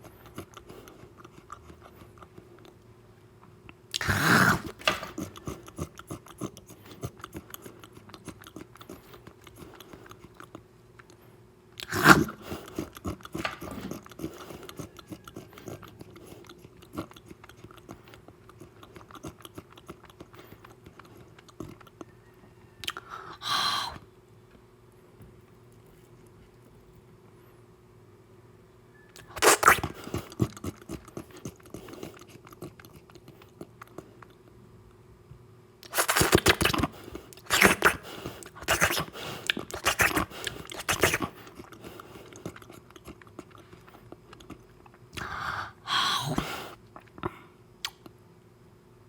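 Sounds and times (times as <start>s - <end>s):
chewing and biting: 0.0s - 2.9s, 3.7s - 23.1s, 29.2s - 34.5s, 35.8s - 45.3s, 46.9s - 48.2s
loud eating bursts: 3.9s - 10.6s, 11.8s - 21.9s, 29.2s - 34.1s, 35.8s - 43.7s.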